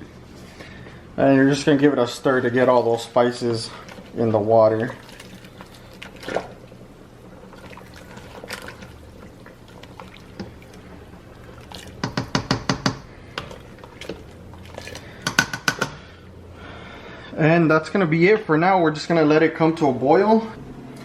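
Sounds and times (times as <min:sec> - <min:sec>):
water sloshing in a pot: 0:01.5 - 0:16.8
spoon knocking on pot: 0:12.0 - 0:13.6, 0:15.2 - 0:16.0.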